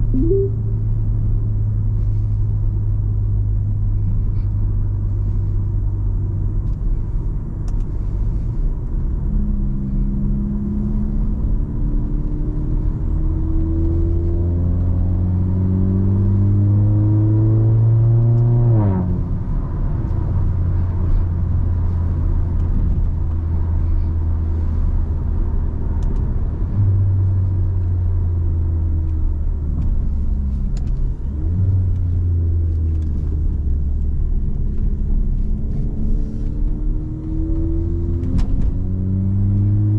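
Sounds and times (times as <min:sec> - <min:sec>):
road noise: 0:00.0 - 0:39.9
car engine accelerating: 0:07.8 - 0:39.9.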